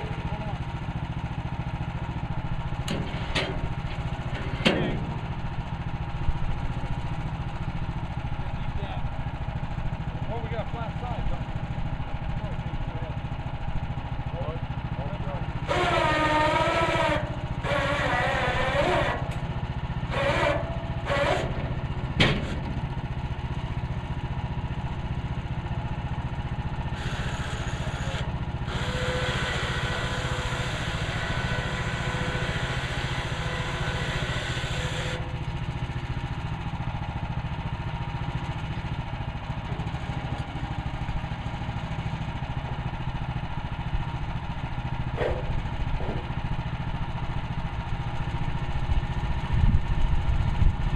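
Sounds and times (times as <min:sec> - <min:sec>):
gas engine running: 0:00.0 - 0:50.9.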